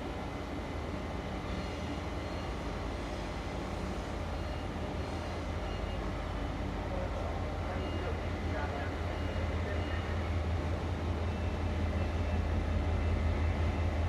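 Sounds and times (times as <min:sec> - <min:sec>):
locomotive engine humming: 0:00.0 - 0:14.0.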